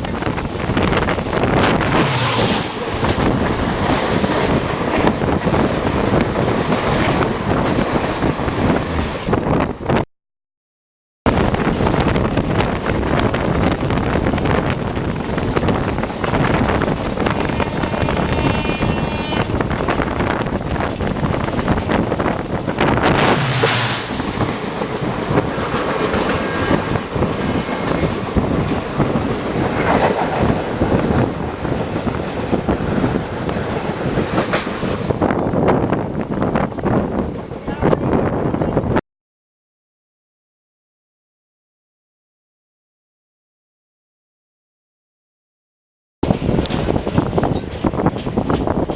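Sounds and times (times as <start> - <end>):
passing train rush and wheel clatter: 0.0 - 10.0, 11.3 - 39.0, 46.2 - 48.9.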